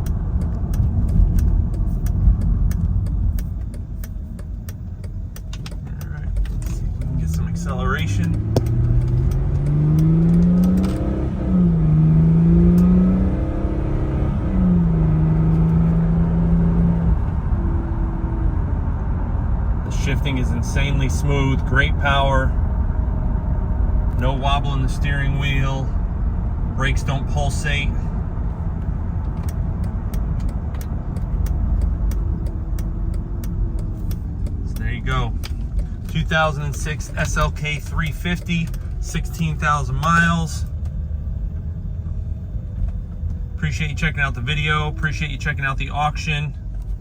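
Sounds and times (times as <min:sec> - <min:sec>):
light regular ticking: 0:00.0 - 0:11.3, 0:26.8 - 0:47.0
car engine accelerating: 0:00.0 - 0:47.0.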